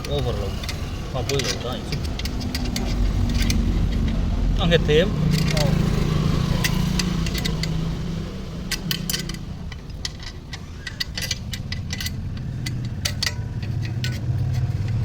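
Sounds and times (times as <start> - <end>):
metallic clinks of tools: 5.3 - 7.9, 8.7 - 15.0.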